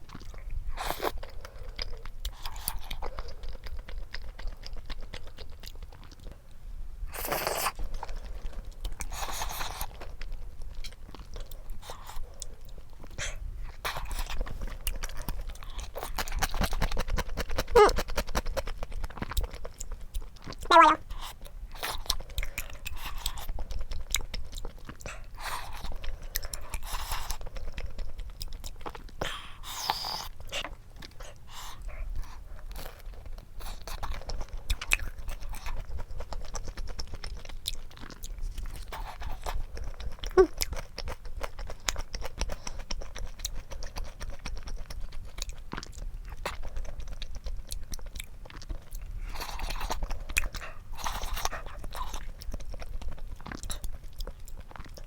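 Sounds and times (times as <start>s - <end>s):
chewing food with crunches: 0.0s - 55.0s.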